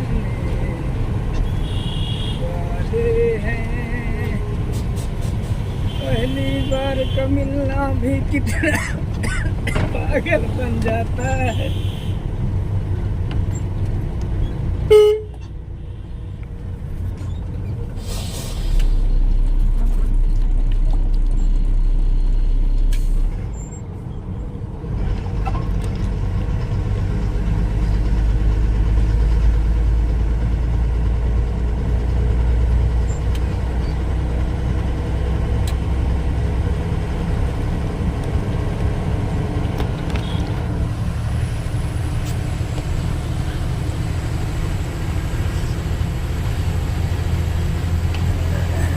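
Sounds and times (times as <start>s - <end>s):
truck engine rumbling: 0.0s - 48.9s
brief hiss: 18.0s - 19.0s.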